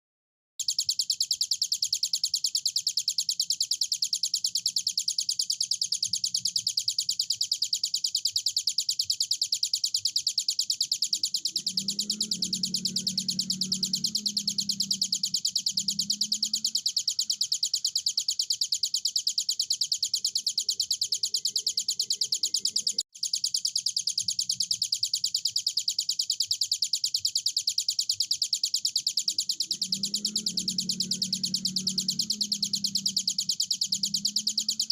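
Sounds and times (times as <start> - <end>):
bird singing rapid high notes: 10.6 - 23.0.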